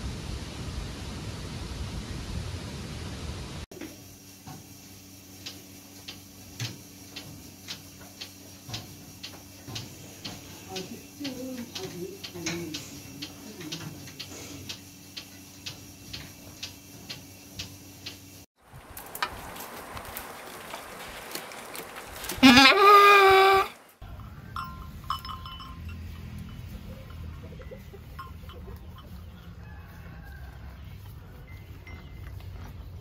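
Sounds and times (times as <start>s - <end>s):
faint regular clicking: 5.4s - 20.3s
goat bleating: 22.4s - 23.8s.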